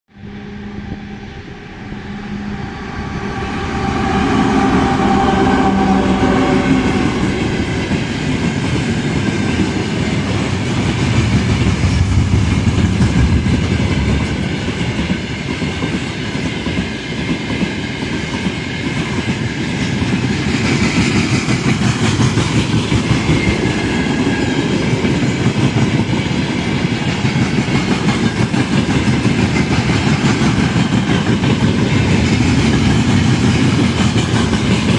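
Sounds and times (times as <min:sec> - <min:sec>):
train humming tone: 0:00.1 - 0:34.9
train wheels clattering over rails: 0:07.1 - 0:34.9.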